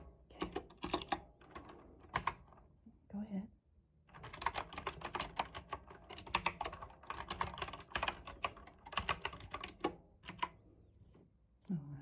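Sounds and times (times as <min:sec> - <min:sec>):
mechanical keyboard typing: 0:00.0 - 0:02.6, 0:04.1 - 0:10.6.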